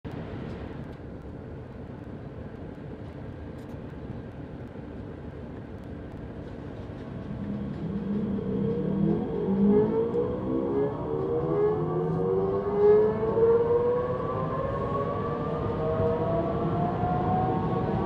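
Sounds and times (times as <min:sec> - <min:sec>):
train low rumble: 0:00.1 - 0:18.0
train drive tone rising: 0:06.9 - 0:18.0.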